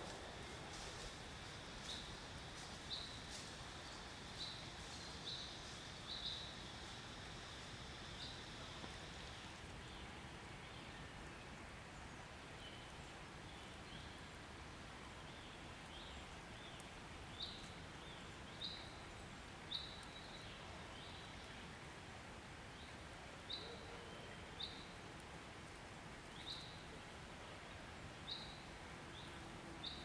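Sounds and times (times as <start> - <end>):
faint outdoor background hiss: 0.0 - 30.0.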